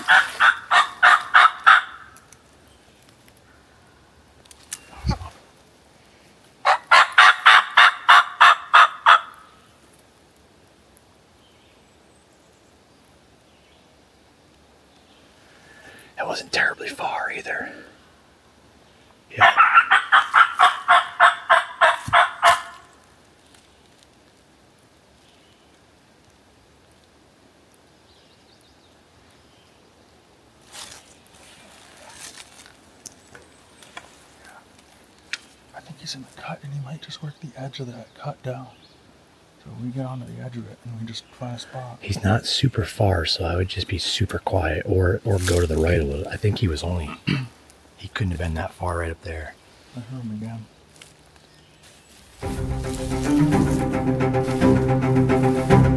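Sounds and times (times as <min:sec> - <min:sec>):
rustles and crunches of footsteps: 0:00.0 - 0:01.4, 0:30.5 - 0:35.8, 0:45.2 - 0:46.7, 0:50.7 - 0:55.8
turkey gobbling: 0:00.0 - 0:02.1, 0:06.7 - 0:09.5, 0:19.3 - 0:22.9.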